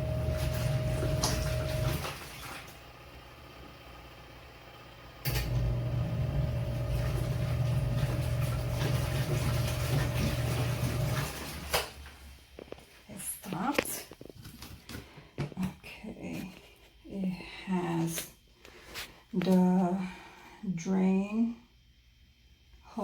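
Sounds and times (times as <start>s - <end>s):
washing machine motor humming: 0.0s - 12.9s.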